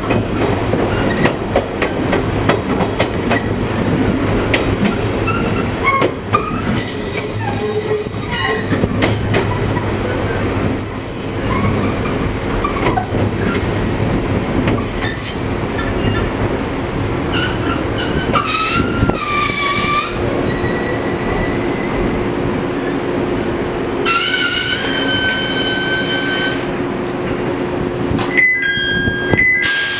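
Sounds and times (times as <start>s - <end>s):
train running rumble: 0.0s - 29.9s
wheel squeal: 14.2s - 16.2s, 16.8s - 22.0s, 22.8s - 26.8s.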